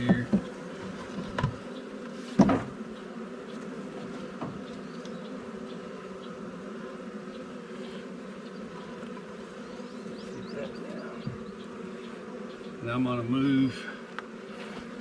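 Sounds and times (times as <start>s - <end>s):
bee swarm buzzing: 0.0s - 15.0s
knock: 2.4s - 2.7s.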